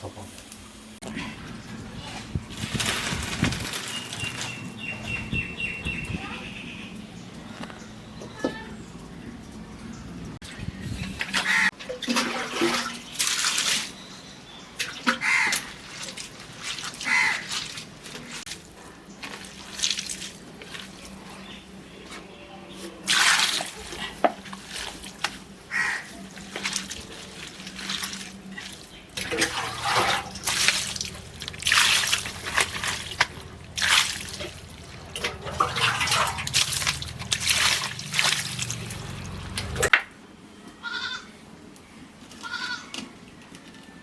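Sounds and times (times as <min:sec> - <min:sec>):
water splashing and sloshing: 0:00.0 - 0:40.0
steady low hum: 0:26.4 - 0:39.9.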